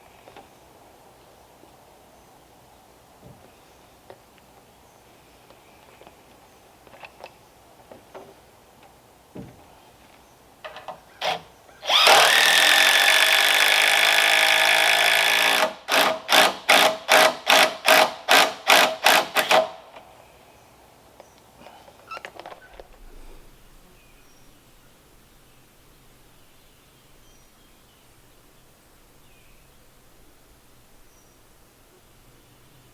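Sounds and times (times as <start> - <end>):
light knocks and handling: 5.5 - 11.1
power drill running: 11.2 - 19.8.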